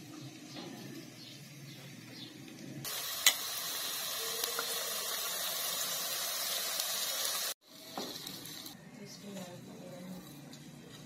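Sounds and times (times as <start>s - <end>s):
chicken sizzling in hot ghee: 2.8s - 8.8s.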